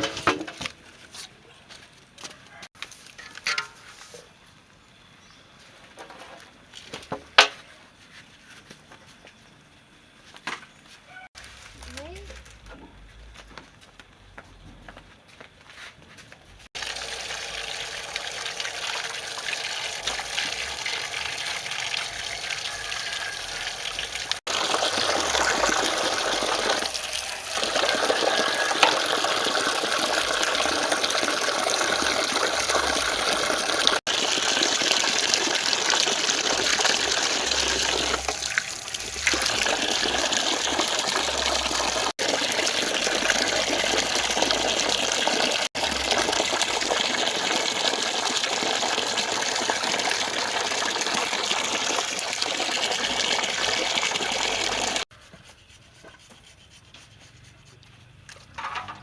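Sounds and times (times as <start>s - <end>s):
water gushing: 16.8s - 55.1s.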